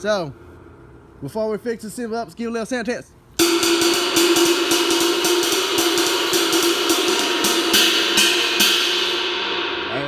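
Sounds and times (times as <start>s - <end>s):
ride cymbal struck with stick: 3.4s - 10.0s.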